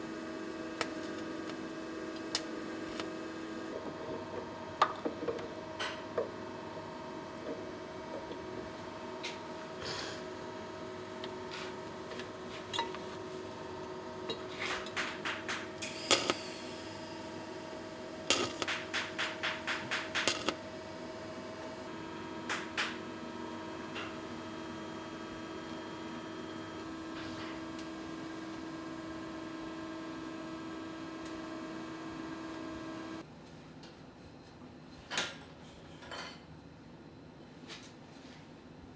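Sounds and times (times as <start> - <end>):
workshop hum: 0.0 - 33.3.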